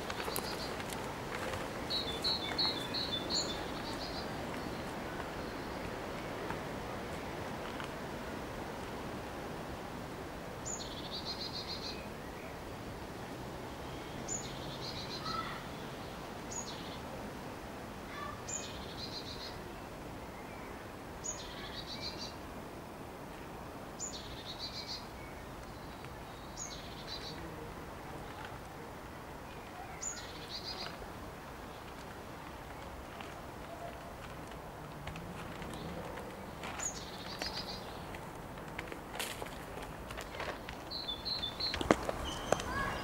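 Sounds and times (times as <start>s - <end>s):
steady outdoor hiss: 0.0s - 43.0s
songbird song with trill: 1.8s - 5.9s, 10.6s - 12.6s, 13.8s - 17.0s, 18.2s - 22.4s, 24.0s - 27.4s, 29.5s - 31.0s, 35.7s - 38.1s, 40.3s - 43.0s
faint bird chirps: 40.9s - 43.0s.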